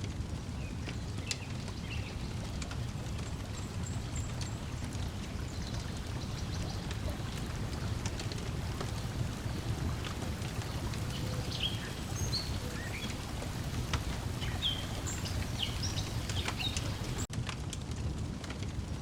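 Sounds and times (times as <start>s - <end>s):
water lapping against shore: 0.2s - 17.3s
high bird chirps: 10.4s - 17.2s.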